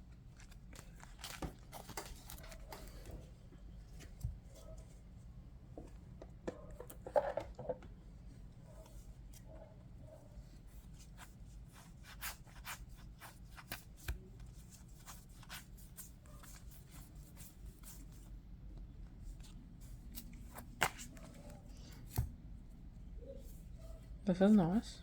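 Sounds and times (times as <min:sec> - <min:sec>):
cards flicking and sliding: 0:20.2 - 0:22.3.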